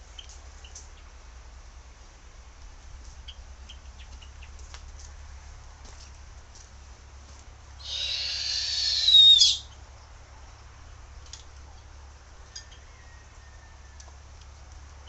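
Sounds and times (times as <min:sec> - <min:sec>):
bird screeching: 0:07.8 - 0:09.7.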